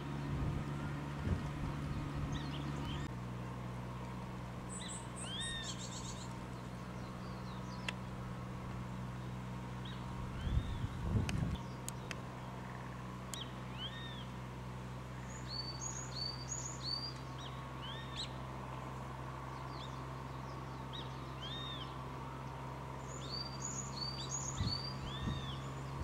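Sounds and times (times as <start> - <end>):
birds chirping: 0.0 - 3.1, 4.0 - 26.0
steady low hum: 0.0 - 26.0.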